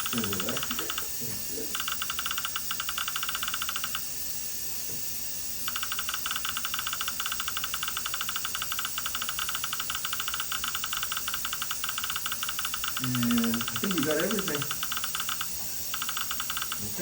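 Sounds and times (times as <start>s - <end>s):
rapid electronic beeping: 0.0s - 4.2s, 5.6s - 17.0s.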